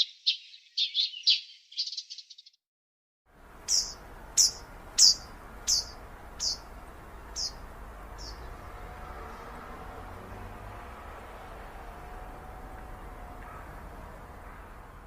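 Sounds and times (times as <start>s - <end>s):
bird chirping: 0.0s - 2.6s, 3.6s - 15.0s.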